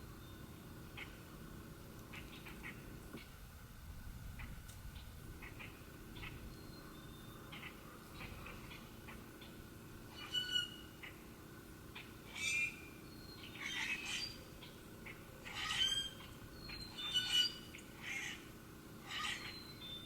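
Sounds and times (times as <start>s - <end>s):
birds giving harsh calls: 10.1s - 11.2s, 12.0s - 19.8s.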